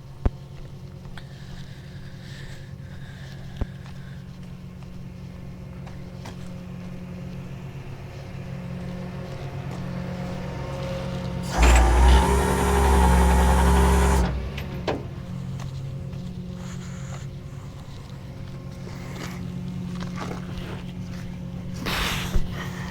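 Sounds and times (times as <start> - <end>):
vehicle engine idling: 5.3 - 21.8
loud mechanical whirring: 11.4 - 15.8.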